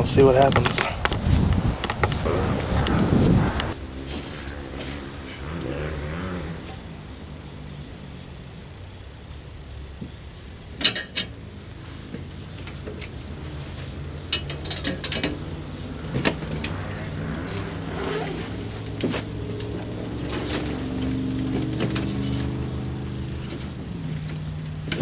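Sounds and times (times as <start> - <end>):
steady low hum: 2.2 - 5.4
metallic clicks and clanks: 14.3 - 15.4.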